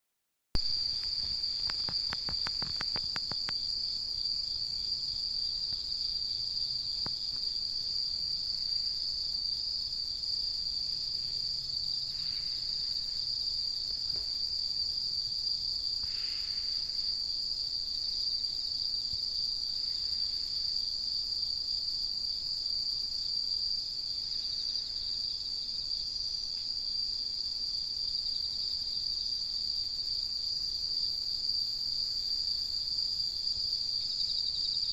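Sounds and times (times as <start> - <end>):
insects trilling: 0.6 - 34.9.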